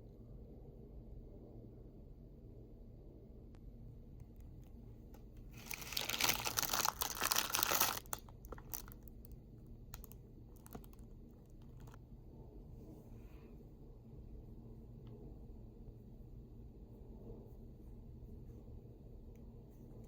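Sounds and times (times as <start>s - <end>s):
packaging crinkling: 5.6s - 12.0s.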